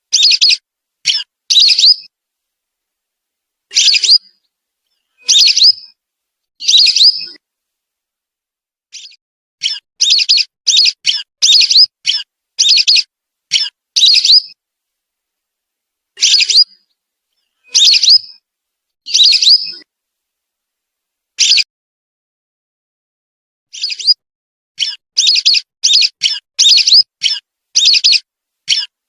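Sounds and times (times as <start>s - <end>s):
whistling ducks calling: 17.7s - 18.3s.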